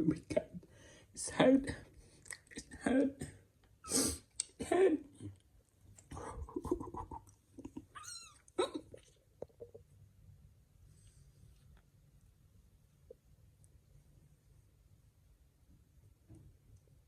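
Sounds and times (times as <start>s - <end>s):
kittens meowing: 7.9s - 8.6s.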